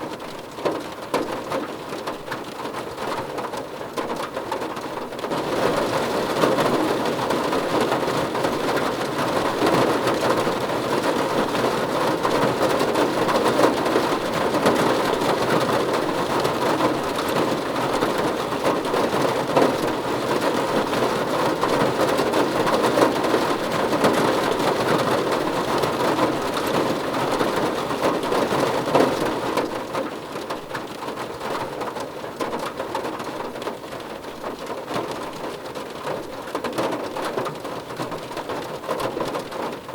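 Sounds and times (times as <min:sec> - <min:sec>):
rain on a car roof: 0:00.0 - 0:39.9.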